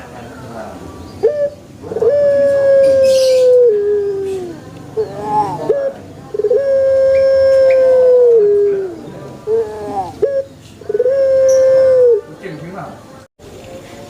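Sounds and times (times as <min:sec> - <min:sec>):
dove cooing: 0:01.2 - 0:12.4.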